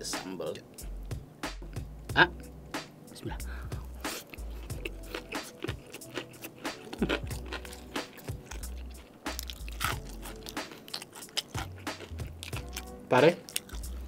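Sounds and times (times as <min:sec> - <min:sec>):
crunchy chewing: 0:04.0 - 0:14.0.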